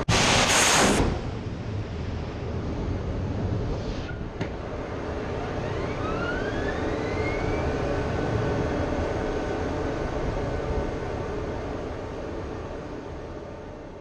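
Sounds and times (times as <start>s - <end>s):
engine rumble with rising whine: 1.0s - 14.0s.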